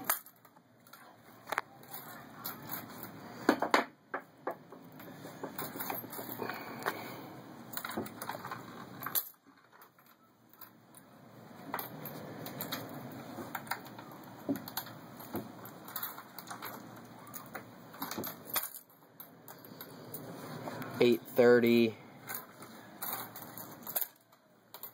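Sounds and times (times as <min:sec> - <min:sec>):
coins clinking: 0:11.6 - 0:20.2, 0:22.2 - 0:24.9.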